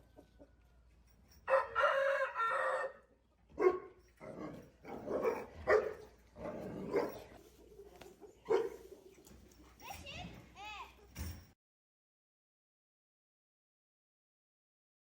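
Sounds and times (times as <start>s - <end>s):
rooster crowing: 1.5s - 3.1s.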